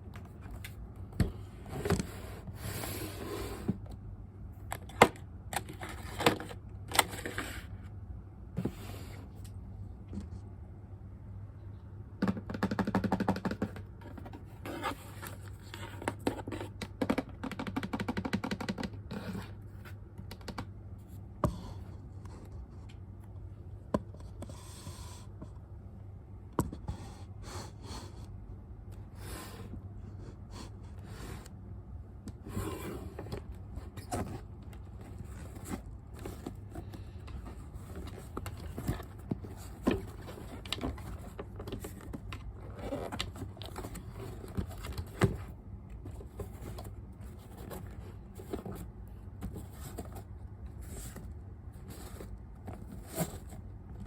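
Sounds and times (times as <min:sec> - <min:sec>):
low steady hum: 0:00.0 - 0:54.0
packaging rustling and scraping: 0:04.7 - 0:07.8, 0:14.0 - 0:16.8, 0:32.4 - 0:54.0.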